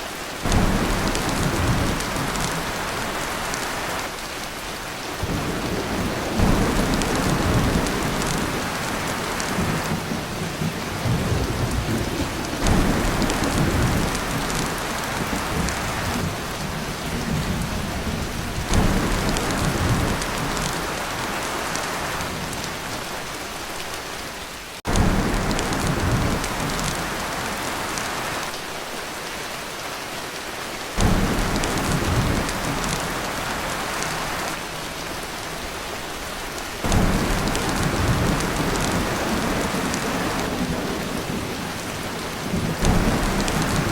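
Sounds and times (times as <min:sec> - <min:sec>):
heavy rain on a tin roof: 0:00.0 - 0:43.9
low thunder rumbles: 0:00.4 - 0:03.9, 0:05.0 - 0:22.6, 0:24.9 - 0:28.3, 0:31.0 - 0:35.3, 0:36.8 - 0:43.9.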